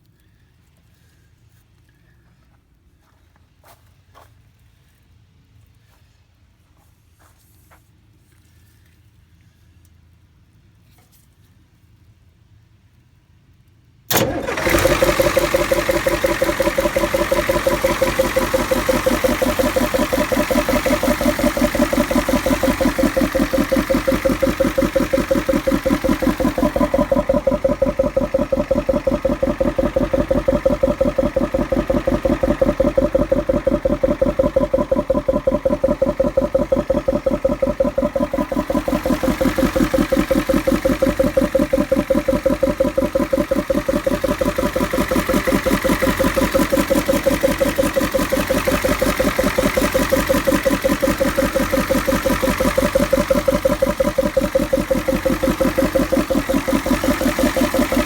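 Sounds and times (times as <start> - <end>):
diesel engine idling: 14.1 - 58.0
rhythmic bonging from air intake: 14.8 - 58.0.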